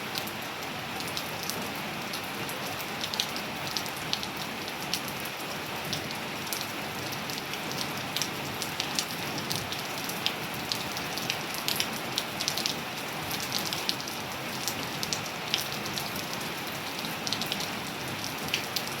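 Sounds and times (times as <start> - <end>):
steady rain hiss: 0.0 - 19.0
raindrops tapping on surfaces: 17.2 - 19.0.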